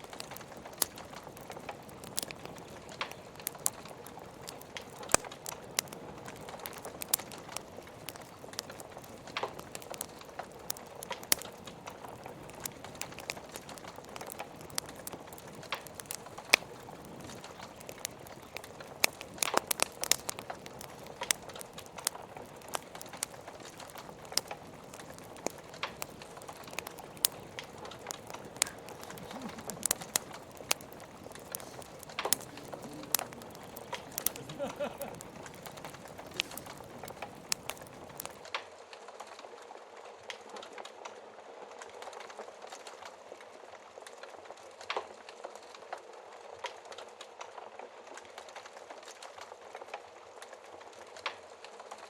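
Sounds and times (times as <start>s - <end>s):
log fire crackling: 0.0s - 52.0s
soft steady hiss: 0.0s - 52.0s.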